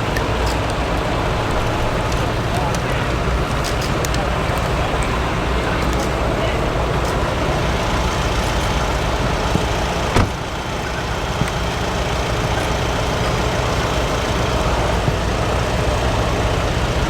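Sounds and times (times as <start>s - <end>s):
truck engine running: 0.0s - 17.0s
short knock: 9.6s - 10.4s.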